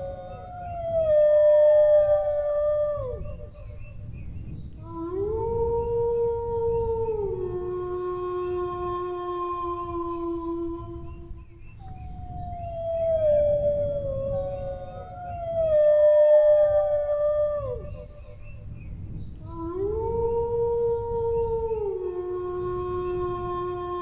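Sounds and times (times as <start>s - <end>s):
dogs howling: 12.1s - 17.9s.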